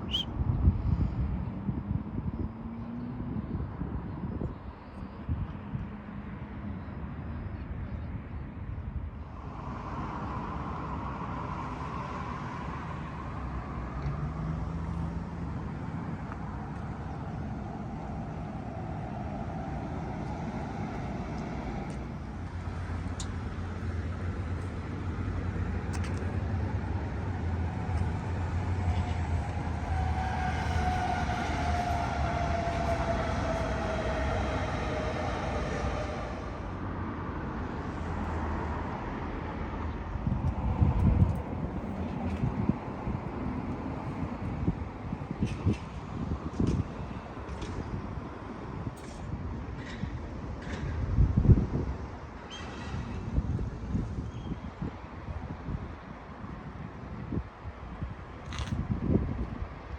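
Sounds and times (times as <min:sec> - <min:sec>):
vehicle passing with low rumble: 0:09.2 - 0:52.1.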